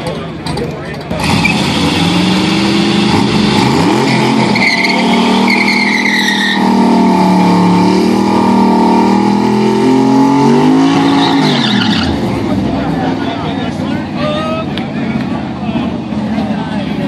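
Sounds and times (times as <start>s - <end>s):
engine running at high revs: 1.2s - 13.4s
tyres squealing: 4.1s - 6.7s, 10.7s - 12.2s.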